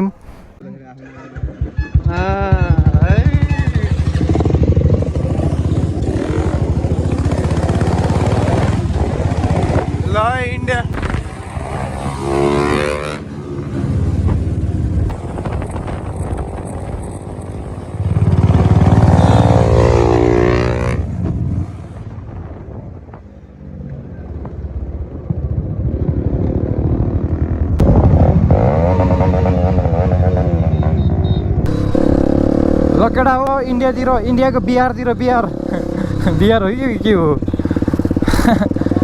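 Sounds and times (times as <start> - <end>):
motorcycle engine revving: 1.5 - 22.2, 25.9 - 39.0.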